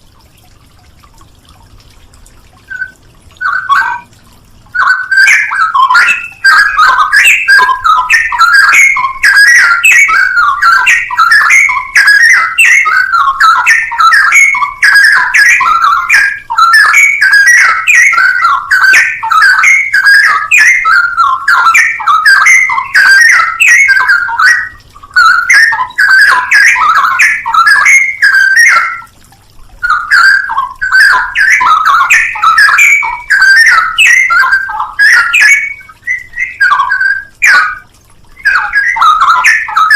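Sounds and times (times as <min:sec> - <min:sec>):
bird singing warbling phrases: 0:02.6 - 0:39.9.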